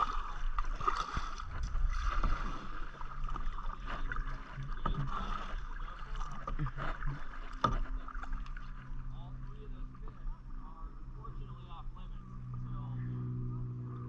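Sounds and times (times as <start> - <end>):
paddle splashing in water: 0.0 - 10.6.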